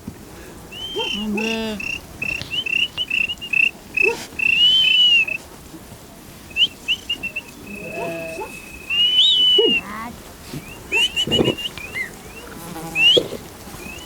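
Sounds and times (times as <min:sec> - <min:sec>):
person whistling sharply: 0:00.8 - 0:05.4, 0:06.6 - 0:09.8.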